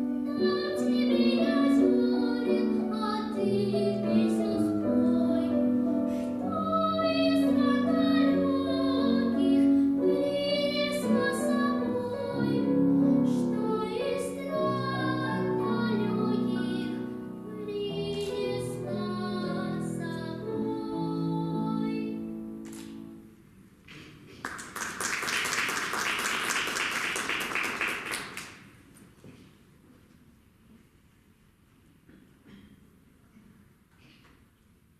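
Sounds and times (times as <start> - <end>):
piano accompaniment: 0.0 - 23.2
young female voice singing: 0.1 - 22.4
audience applauding: 24.0 - 28.7.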